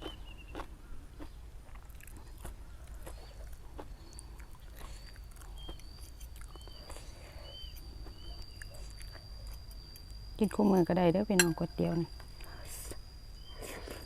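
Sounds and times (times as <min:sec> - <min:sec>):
person chewing noodle soup: 0:00.0 - 0:10.3
thin high whine: 0:05.1 - 0:14.0.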